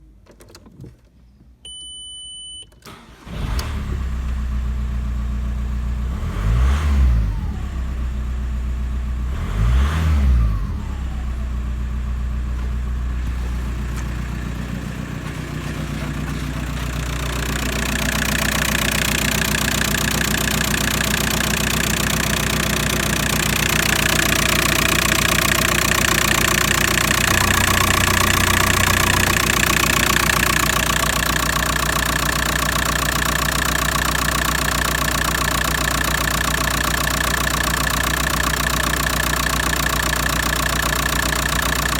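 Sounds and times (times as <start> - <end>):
short electronic beep: 1.7 - 2.8
diesel engine starting and idling: 2.7 - 41.9
diesel engine revving: 2.9 - 41.9.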